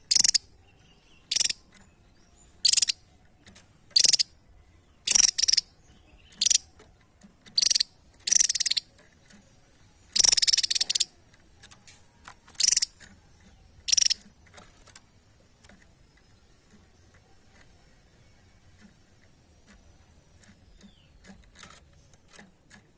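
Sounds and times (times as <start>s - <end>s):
songbird trilling: 0.0s - 6.8s, 7.4s - 11.9s, 12.5s - 14.6s, 18.7s - 21.6s.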